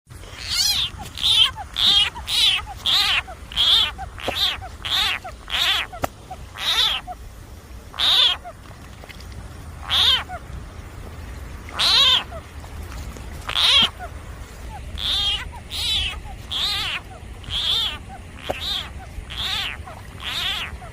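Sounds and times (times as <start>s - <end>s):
frog screaming: 0.3s - 7.2s, 7.9s - 8.5s, 9.8s - 10.4s, 11.7s - 12.4s, 13.5s - 14.1s, 14.8s - 20.9s.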